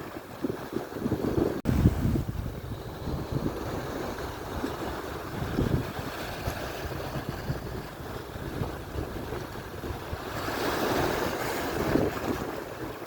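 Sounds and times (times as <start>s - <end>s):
surf washing on shore: 0.0s - 13.0s
wind buffeting microphone: 0.0s - 13.0s.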